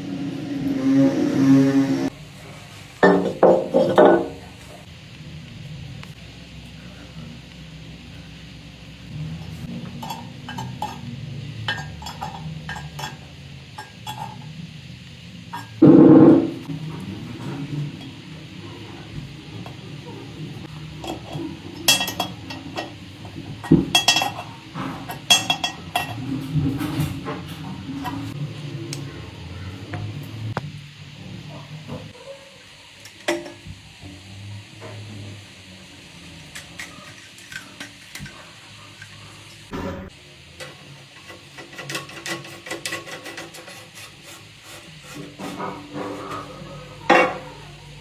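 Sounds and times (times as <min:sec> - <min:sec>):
tool scraping: 0:00.0 - 0:04.4, 0:41.2 - 0:46.8
hard objects clinking and knocking: 0:21.0 - 0:27.2.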